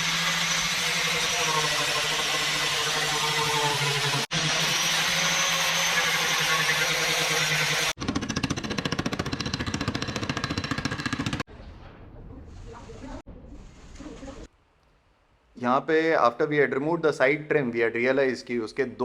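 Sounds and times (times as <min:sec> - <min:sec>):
power tool whirring: 0:00.0 - 0:11.5
workshop noise: 0:00.0 - 0:12.1.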